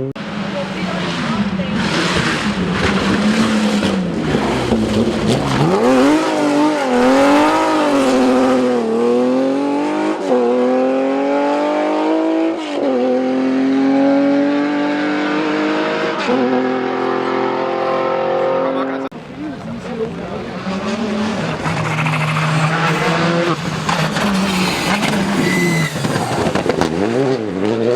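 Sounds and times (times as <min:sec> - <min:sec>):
rally car engine revving: 0:00.0 - 0:27.9
gear upshifts: 0:00.6 - 0:09.2, 0:19.2 - 0:27.4.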